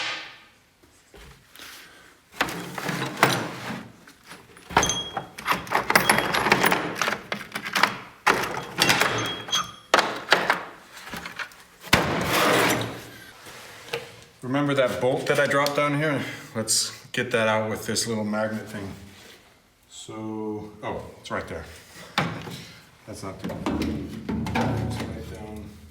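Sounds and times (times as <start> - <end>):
metal clanking and scraping: 2.4 - 13.2.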